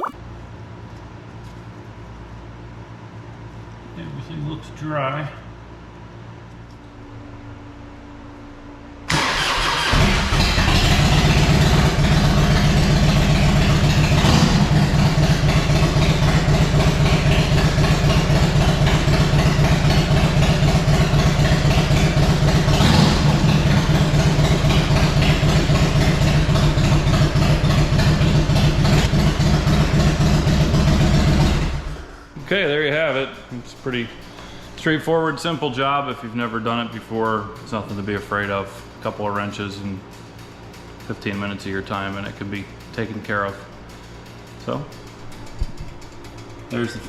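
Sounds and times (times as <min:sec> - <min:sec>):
electric starter cranking: 0:09.1 - 0:11.4
motorcycle engine idling: 0:09.2 - 0:47.0.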